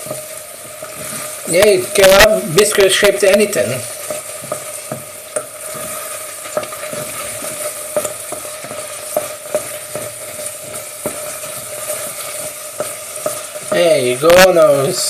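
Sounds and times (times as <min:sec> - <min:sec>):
utensil scraping a pan: 0:00.0 - 0:14.6
risotto sizzling in a pan: 0:00.0 - 0:15.0.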